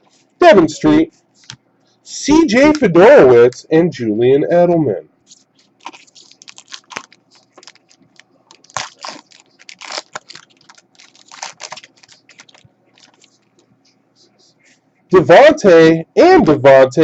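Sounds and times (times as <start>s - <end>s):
cards and foil wrapper crinkling: 5.6s - 13.5s.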